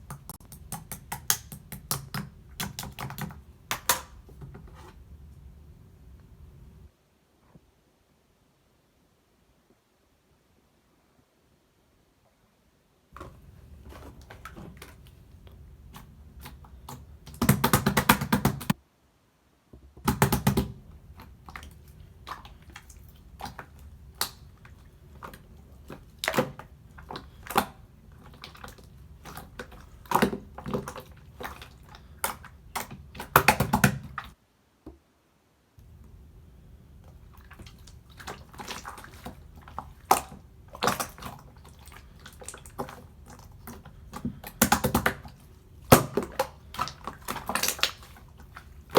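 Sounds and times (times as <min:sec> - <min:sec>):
slime clicking and squelching: 0:00.0 - 0:04.3, 0:13.2 - 0:18.8, 0:20.1 - 0:34.4, 0:37.0 - 0:48.9.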